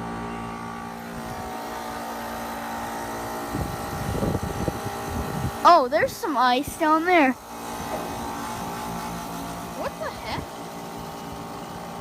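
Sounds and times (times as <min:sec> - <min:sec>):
heat pump humming: 0:00.0 - 0:12.0.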